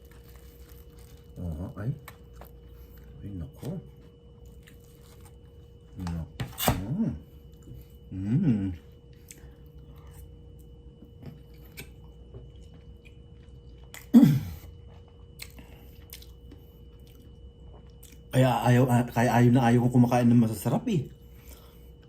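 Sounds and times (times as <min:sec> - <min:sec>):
chewing noodle soup: 0:00.0 - 0:06.0, 0:07.4 - 0:18.4
person moaning pleased: 0:08.1 - 0:08.8.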